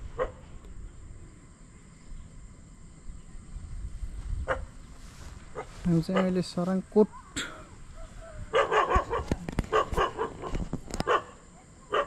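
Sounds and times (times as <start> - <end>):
dog barking: 0.2 - 0.4, 4.5 - 4.7, 5.5 - 6.4, 8.0 - 12.0.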